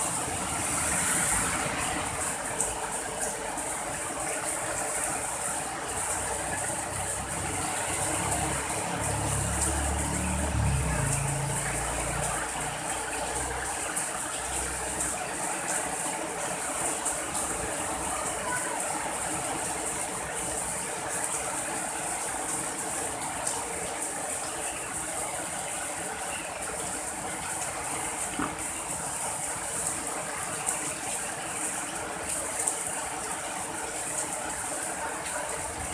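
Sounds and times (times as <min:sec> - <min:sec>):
passing vehicle rumble: 0:00.0 - 0:02.6, 0:07.0 - 0:13.7
steady rain: 0:00.0 - 0:35.9.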